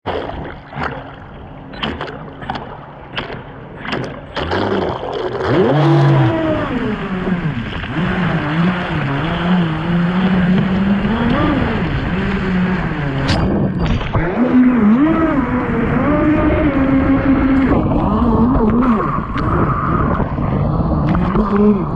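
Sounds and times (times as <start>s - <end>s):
sharp knocks and splashes: 0.0s - 14.4s
boat motor running: 0.1s - 21.9s
rushing water: 4.2s - 21.9s.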